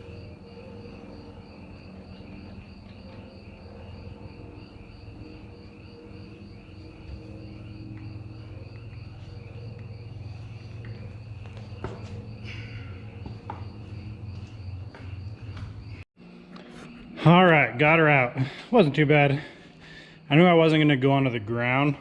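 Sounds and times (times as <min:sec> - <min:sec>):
crickets chirping: 0:00.0 - 0:22.0
low steady hum: 0:00.0 - 0:22.0.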